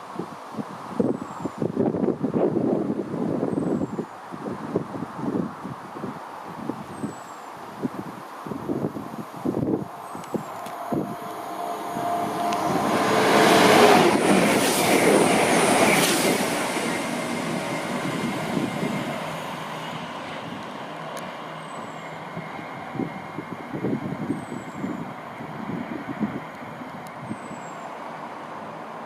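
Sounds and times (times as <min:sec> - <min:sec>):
low train rumble: 0:07.9 - 0:29.0
train passing: 0:08.9 - 0:29.0.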